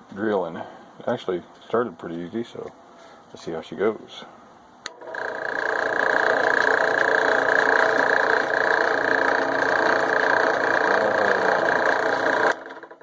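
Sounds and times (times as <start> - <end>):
drill press whining: 4.8 - 13.0.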